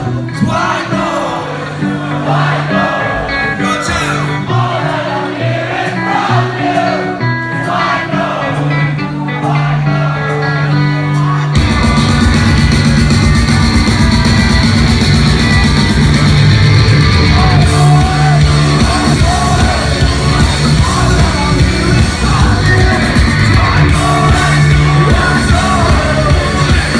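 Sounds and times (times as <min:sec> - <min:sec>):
distorted guitar: 0:00.0 - 0:26.9
guitar and bass chords: 0:00.0 - 0:26.9
loud drums: 0:11.6 - 0:26.9
man singing: 0:17.2 - 0:26.9.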